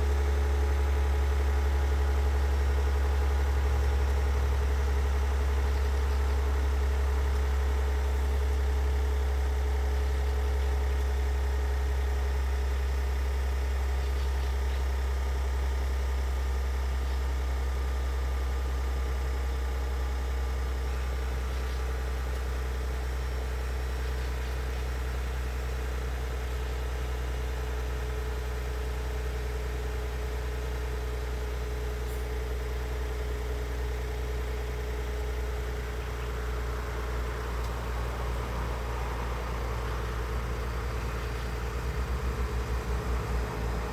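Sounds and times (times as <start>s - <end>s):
car engine droning: 0.0s - 43.9s.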